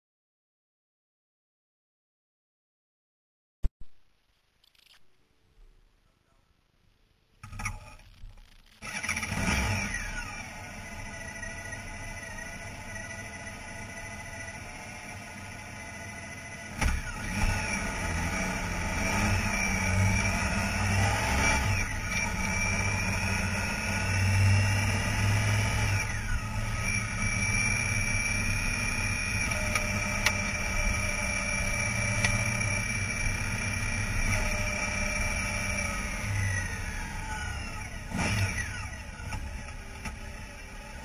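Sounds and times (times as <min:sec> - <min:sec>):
motorcycle engine accelerating: 0:08.8 - 0:41.0.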